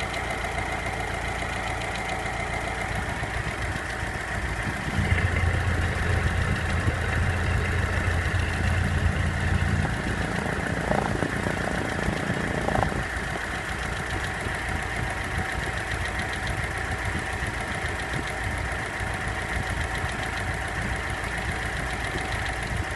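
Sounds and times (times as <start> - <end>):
deep hum: 0.0 - 18.2
car engine idling: 0.0 - 22.9
engine knocking: 0.0 - 22.9.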